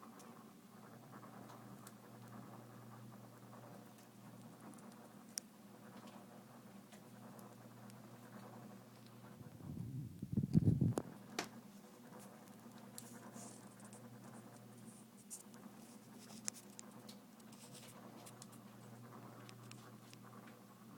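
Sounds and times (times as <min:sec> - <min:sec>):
steady low hum: 0:00.0 - 0:20.9
scratching and rustling: 0:03.5 - 0:20.5
low rumble with sharp clicks: 0:07.1 - 0:11.2.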